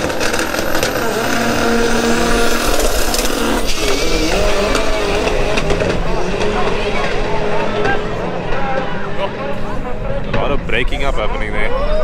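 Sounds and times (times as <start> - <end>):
engine pops: 0.0 - 9.2
drag racing cars accelerating: 0.0 - 12.0.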